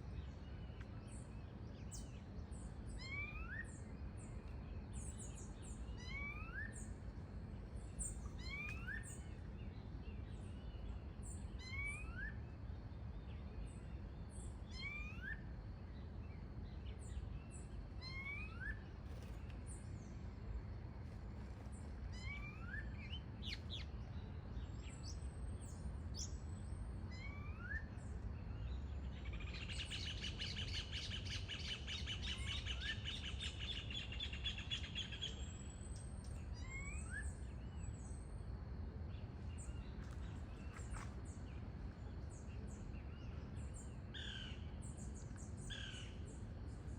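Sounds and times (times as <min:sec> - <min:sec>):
low background rumble: 0:15.4 - 0:46.9.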